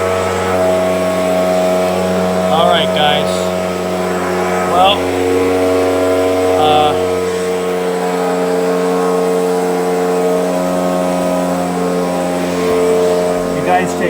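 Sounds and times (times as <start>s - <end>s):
leaf blower engine running: 0.0s - 14.0s.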